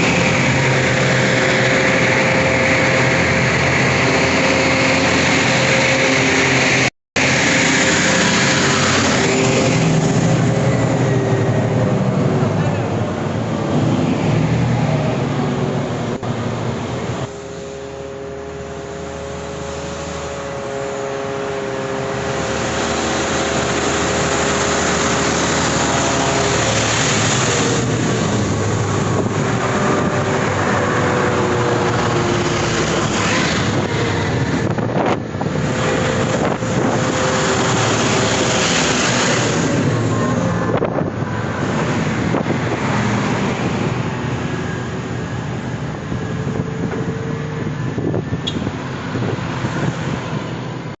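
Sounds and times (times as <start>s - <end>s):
dump trucks driving past: 0.0s - 51.0s
steady engine whine: 0.0s - 51.0s
tyre and wind noise: 25.2s - 51.0s.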